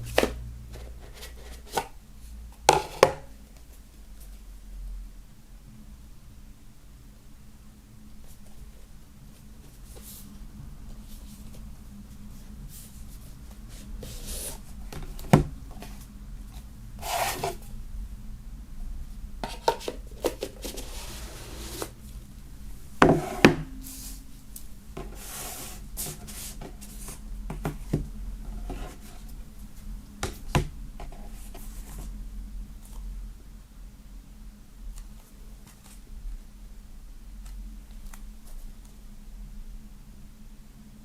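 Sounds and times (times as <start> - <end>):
cardboard and paper rubbing: 12.4 - 14.8, 17.0 - 17.7, 19.4 - 22.0, 25.0 - 27.2.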